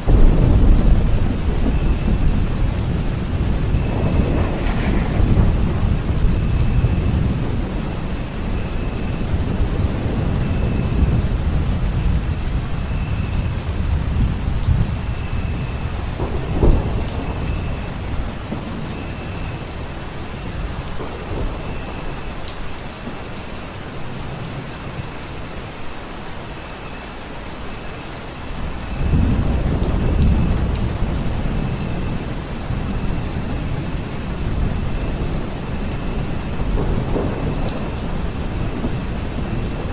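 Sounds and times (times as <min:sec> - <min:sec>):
thunder rolling: 0:00.0 - 0:23.4, 0:28.6 - 0:39.9
heavy rain: 0:00.0 - 0:39.9
sharp thunder crack: 0:00.1 - 0:08.6, 0:15.5 - 0:19.5.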